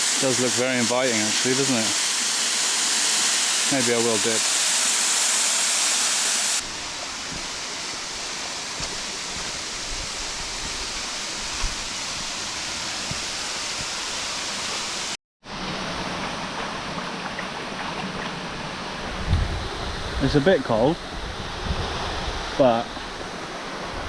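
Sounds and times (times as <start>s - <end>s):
waterfall rushing: 0.0s - 15.2s.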